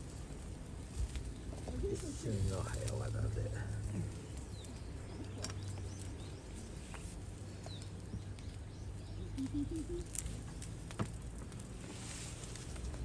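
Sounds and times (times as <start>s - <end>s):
low calls: 9.1s - 10.4s.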